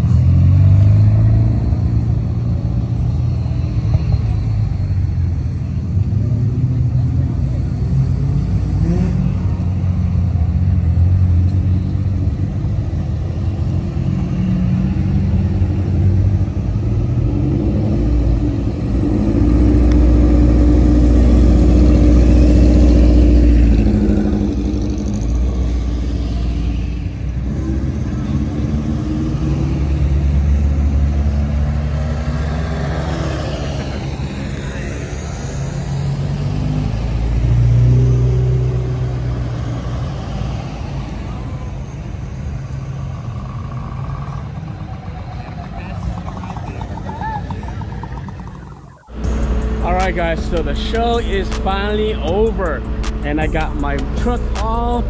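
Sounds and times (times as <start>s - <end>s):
car engines revving: 0.0s - 55.0s
people talking: 44.8s - 55.0s.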